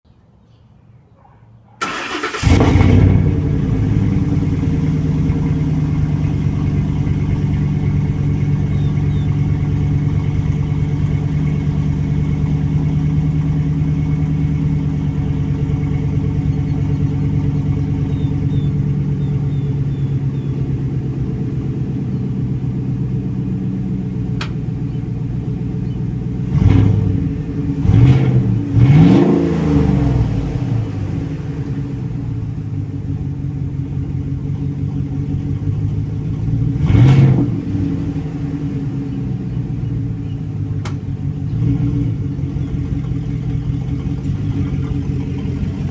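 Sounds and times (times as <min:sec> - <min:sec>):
engine cranking: 0:01.8 - 0:03.0
engine revving: 0:01.8 - 0:21.9, 0:26.4 - 0:32.5, 0:36.2 - 0:45.9
pickup engine idling: 0:01.8 - 0:28.8, 0:30.2 - 0:37.0, 0:37.6 - 0:45.9.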